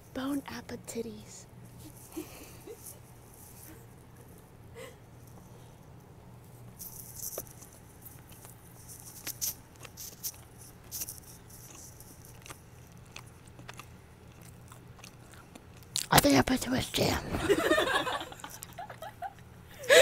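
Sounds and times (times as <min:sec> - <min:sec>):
chewing sandwich: 0:06.7 - 0:16.1
wet mouth smacks: 0:12.4 - 0:16.1.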